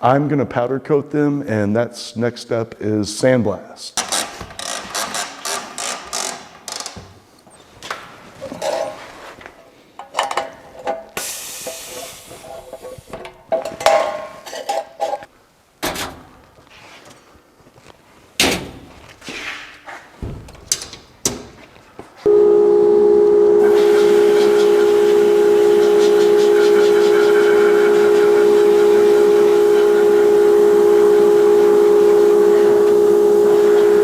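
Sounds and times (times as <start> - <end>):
sandblasting air hiss: 11.2 - 12.5, 23.6 - 34.0
machine humming: 22.3 - 34.0.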